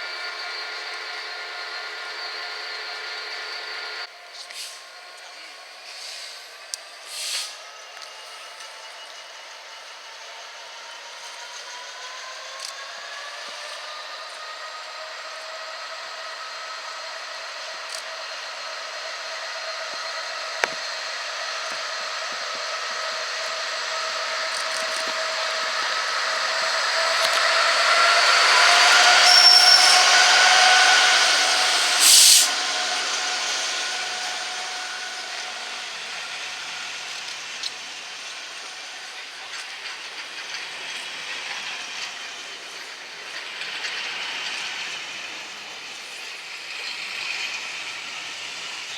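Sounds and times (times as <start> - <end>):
train passing: 0.0 - 48.9
air hiss: 7.1 - 7.6, 31.3 - 33.1.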